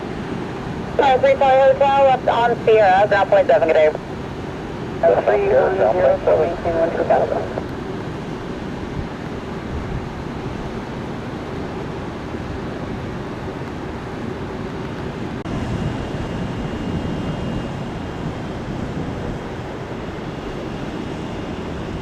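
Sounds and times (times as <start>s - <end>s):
faint high whine: 0.0s - 8.4s
distant jet engines roaring: 0.0s - 22.0s
wind on microphone: 5.6s - 11.0s, 15.4s - 22.0s.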